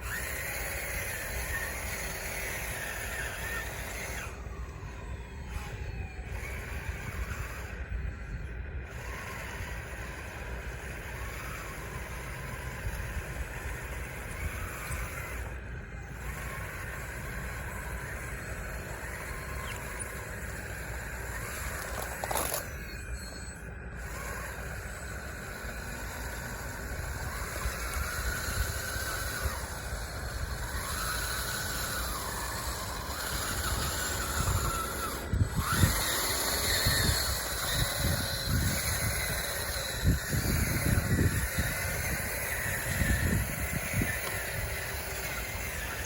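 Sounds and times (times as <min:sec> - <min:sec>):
electric motors whining: 0:00.0 - 0:46.0
irregular bumps: 0:16.2 - 0:23.0.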